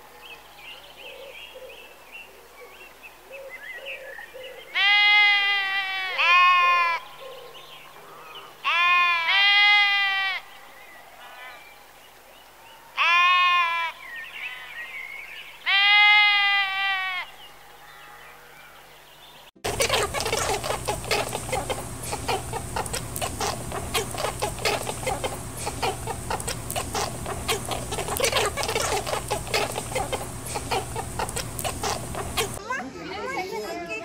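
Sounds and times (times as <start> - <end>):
sheep bleating: 4.8 - 7.0
faint bird chirps: 19.4 - 32.6.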